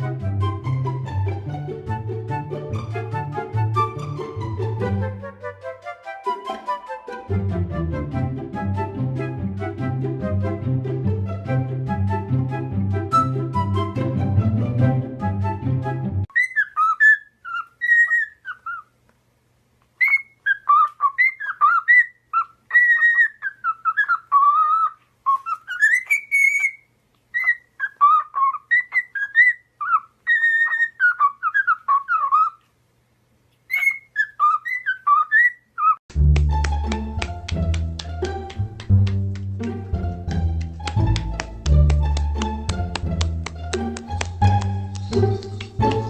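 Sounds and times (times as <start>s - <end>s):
background music: 0.0s - 16.3s, 36.1s - 46.0s
parrot whistling a tune: 16.3s - 18.8s, 20.0s - 26.8s, 27.4s - 32.6s, 33.7s - 36.0s.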